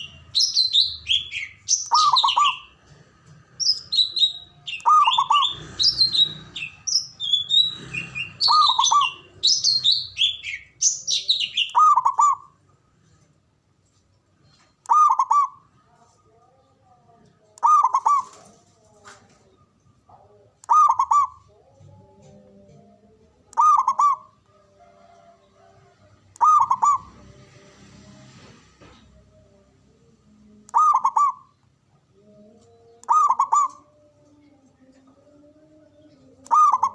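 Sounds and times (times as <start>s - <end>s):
dove cooing: 0.0s - 12.6s, 14.9s - 15.8s, 17.6s - 19.5s, 20.1s - 27.2s, 30.7s - 31.5s, 33.0s - 34.1s, 36.2s - 36.9s
small birds chirping: 0.0s - 13.2s.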